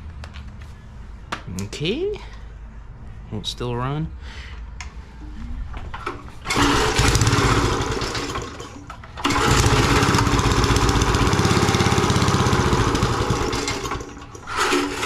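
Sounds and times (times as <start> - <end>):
small gasoline engine running: 6.5 - 15.0.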